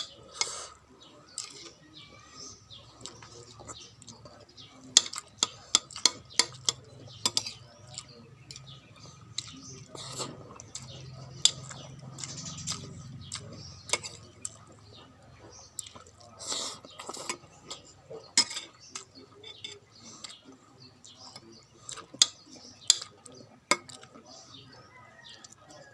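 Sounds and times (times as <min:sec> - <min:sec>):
faint low hum: 0:00.0 - 0:25.9
utensils clinking against bowl: 0:03.0 - 0:14.9, 0:15.8 - 0:20.4, 0:21.1 - 0:24.6.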